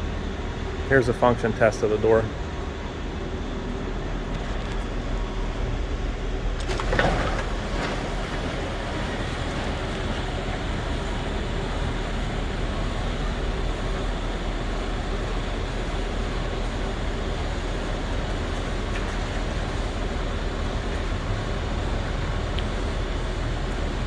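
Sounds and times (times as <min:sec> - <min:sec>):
garage door rumbling in tracks: 0:00.0 - 0:24.0
garage door clank: 0:06.6 - 0:09.6.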